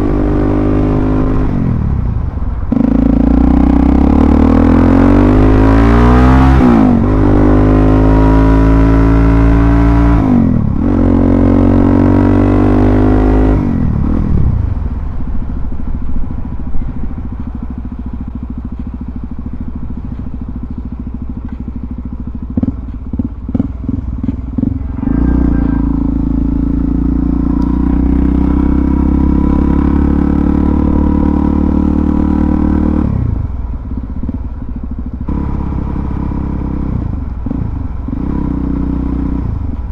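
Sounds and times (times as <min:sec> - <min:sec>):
motorcycle engine revving: 0:00.0 - 0:14.9, 0:15.8 - 0:39.9.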